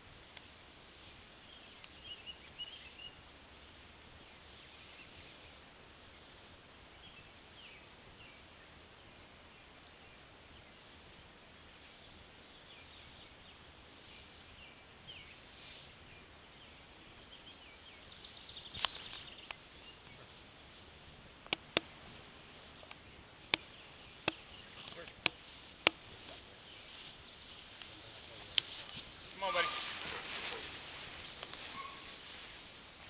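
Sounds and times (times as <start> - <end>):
small birds chirping: 1.4 - 32.4
sharp clicks: 21.4 - 22.0, 22.8 - 26.0.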